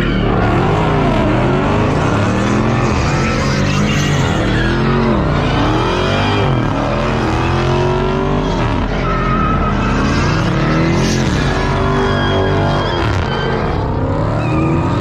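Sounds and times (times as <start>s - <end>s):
car engines revving: 0.0s - 15.0s
high squeal: 0.0s - 15.0s.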